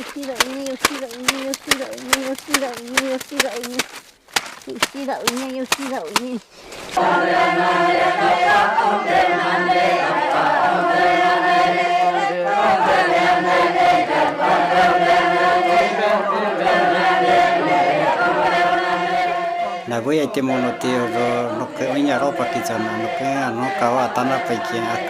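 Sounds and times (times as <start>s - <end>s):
group of voices chanting: 7.0s - 25.0s.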